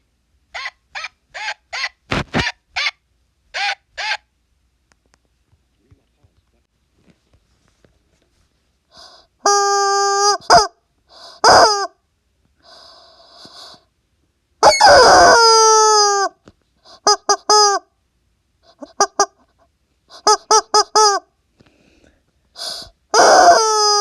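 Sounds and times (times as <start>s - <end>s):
toy honking squeaky tones: 0.5s - 3.0s, 9.5s - 12.0s, 14.6s - 16.4s, 17.0s - 17.8s, 20.2s - 21.2s, 23.1s - 24.0s.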